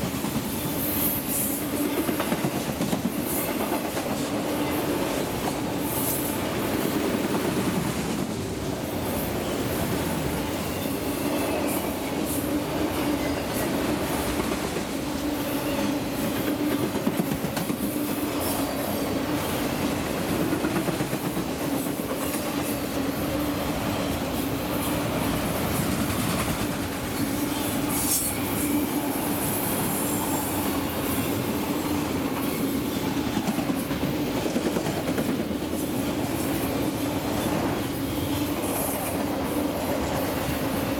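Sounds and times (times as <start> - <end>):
freight train wheels rumbling: 0.0 - 40.9.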